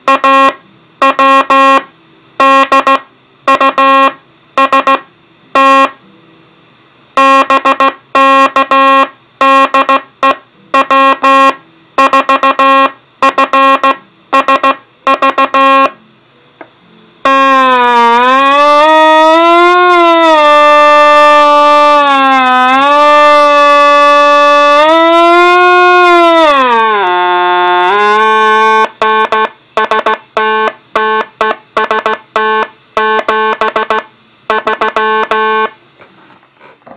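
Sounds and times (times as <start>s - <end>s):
morse code buzzy tone: 0.0s - 6.0s, 7.2s - 16.0s, 27.8s - 35.8s.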